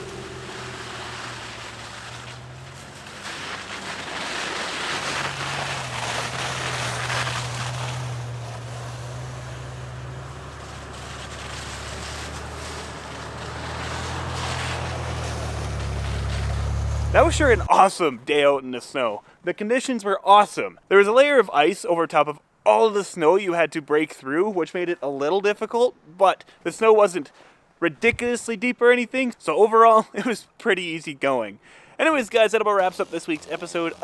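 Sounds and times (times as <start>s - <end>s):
rush of wind and snow: 0.0s - 17.7s
truck engine under load: 0.0s - 17.7s.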